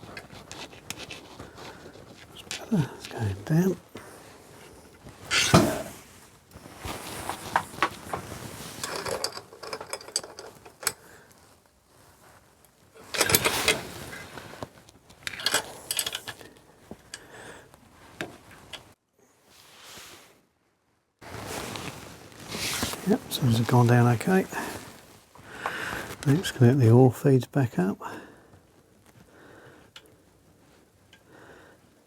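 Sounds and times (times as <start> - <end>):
hand tools clinking on metal: 5.3 - 5.9, 8.8 - 11.0, 13.0 - 14.0, 15.3 - 17.3
metal clatter: 5.3 - 5.9, 8.8 - 11.0, 13.0 - 14.0.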